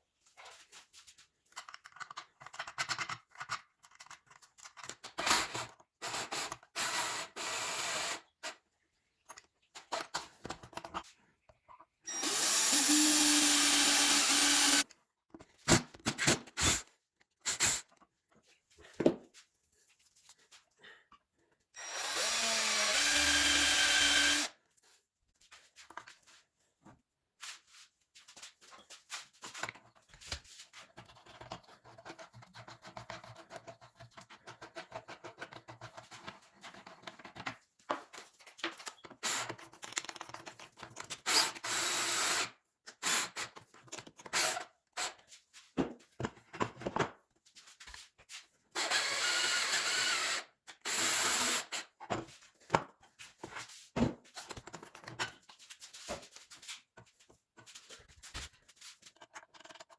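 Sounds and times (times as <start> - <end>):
power tool running: 12.1 - 14.8, 21.8 - 24.5.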